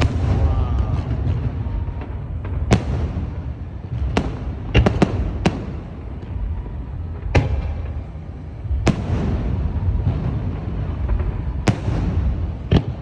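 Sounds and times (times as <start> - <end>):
fireworks bangs: 0.0 - 13.0
fireworks crackle: 0.0 - 13.0
low rumble: 0.0 - 13.0.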